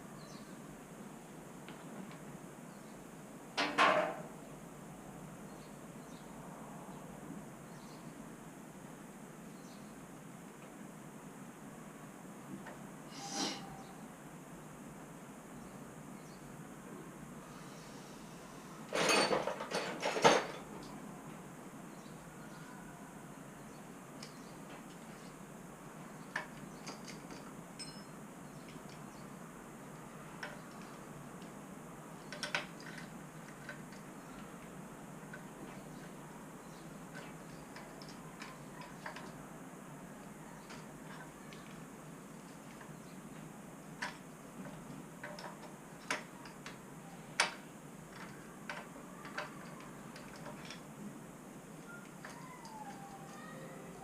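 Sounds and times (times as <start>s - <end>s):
tools clicking and tapping: 26.3s - 29.1s, 44.0s - 46.8s
clicks and taps of metal tools: 44.0s - 46.8s, 47.4s - 50.8s.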